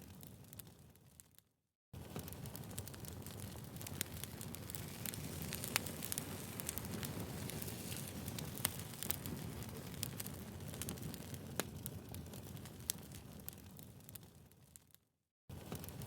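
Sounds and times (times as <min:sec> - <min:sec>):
low rustle of flames: 0:00.0 - 0:16.0
firewood crackling: 0:02.0 - 0:14.9, 0:15.5 - 0:16.0
sharp pops of burning wood: 0:02.1 - 0:14.2.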